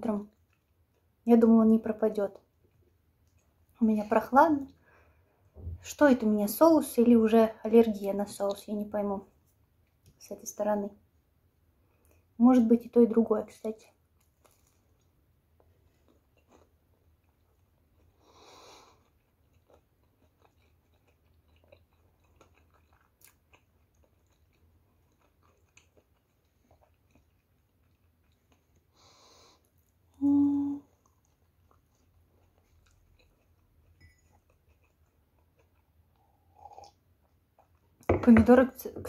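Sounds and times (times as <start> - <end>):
person chewing bread: 0.3 - 1.2, 2.4 - 3.8, 14.0 - 30.2, 30.8 - 38.0
soft breaths: 18.1 - 19.1, 28.8 - 29.9.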